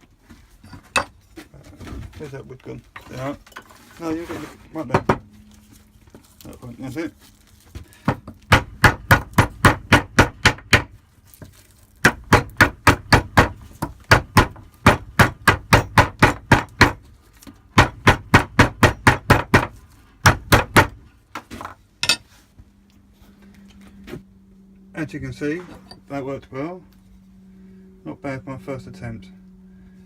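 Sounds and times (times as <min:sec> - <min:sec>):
tomahawk chopping into wood: 0:12.0 - 0:17.0.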